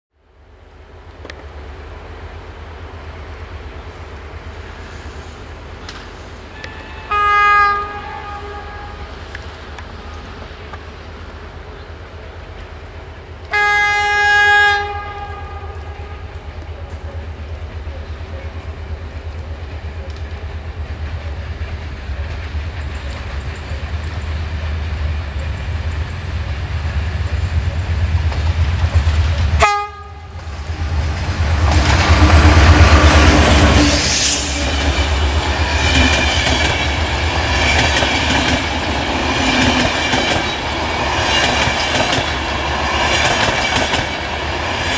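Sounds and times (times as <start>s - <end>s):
locomotive rumble: 0.3s - 44.9s
train horn: 6.5s - 10.4s, 13.4s - 18.7s, 29.3s - 38.4s
wheels clacking over rail joints: 15.8s - 44.9s.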